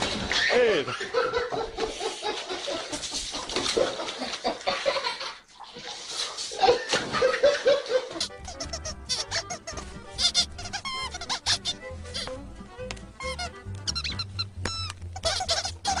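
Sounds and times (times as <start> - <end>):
water splashing in a barrel: 0.0 - 8.2
cartoon soundtrack music: 8.2 - 16.0.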